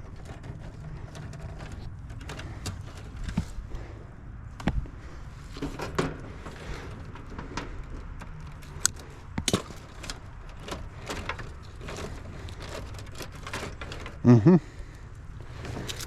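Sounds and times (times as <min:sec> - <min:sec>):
tools clicking on wires and terminals: 0:07.0 - 0:14.3, 0:15.4 - 0:16.0.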